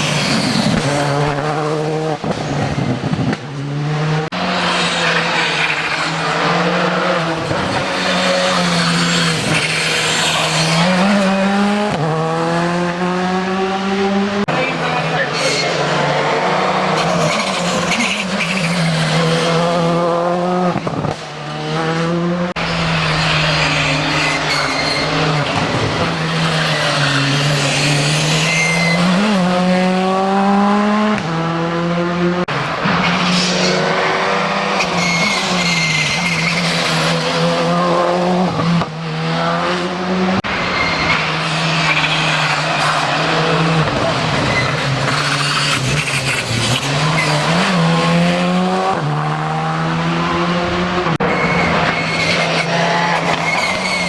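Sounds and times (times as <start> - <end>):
rally car engines accelerating: 0.0 - 54.0
tyres squealing: 22.6 - 29.4, 51.2 - 54.0.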